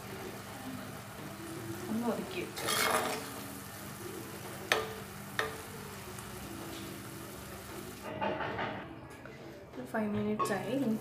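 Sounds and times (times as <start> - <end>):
food sizzling in a pot: 0.0 - 8.1.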